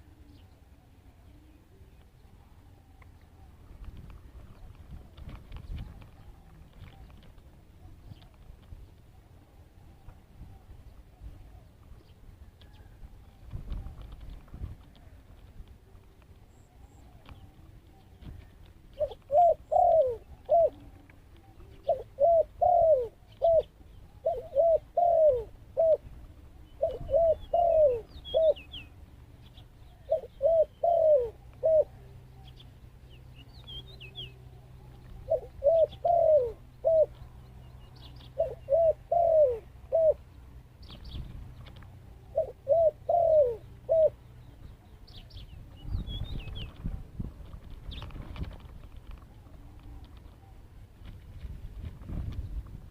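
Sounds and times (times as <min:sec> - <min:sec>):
dove cooing: 0:00.0 - 0:03.7, 0:15.8 - 0:29.0, 0:29.8 - 0:33.0, 0:33.8 - 0:47.2, 0:47.9 - 0:51.0
small birds chirping: 0:13.6 - 0:51.2.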